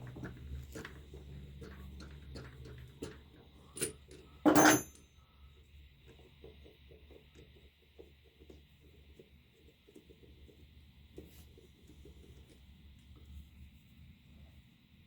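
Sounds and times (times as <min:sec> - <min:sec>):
loud metallic clank with ring: 0:04.5 - 0:05.0.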